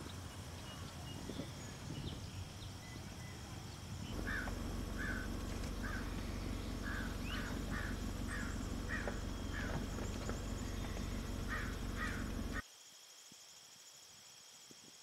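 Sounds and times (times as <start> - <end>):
faint bird chirps: 0.0 - 12.6
outdoor background noise: 0.0 - 15.0
bird harsh call: 4.1 - 12.6.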